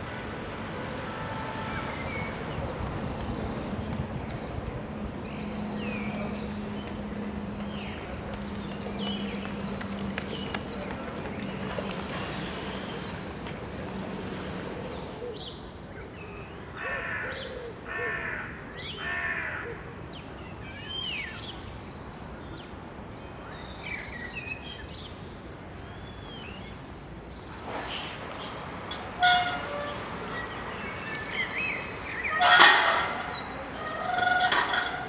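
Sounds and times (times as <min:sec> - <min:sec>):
steady background noise: 0:00.0 - 0:35.0
harsh bird calls: 0:25.8 - 0:35.0.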